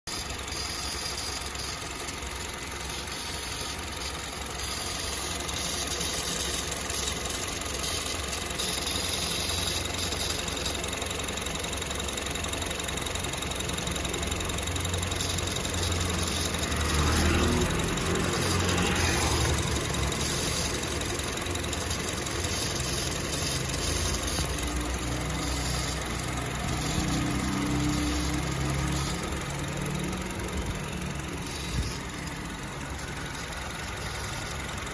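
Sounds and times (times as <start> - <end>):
car engine running: 0.0 - 34.9
abnormal engine noise: 0.1 - 34.9.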